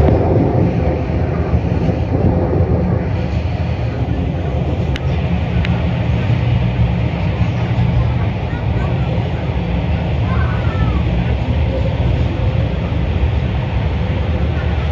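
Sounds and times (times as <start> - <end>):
subway train rumble: 0.0 - 14.9.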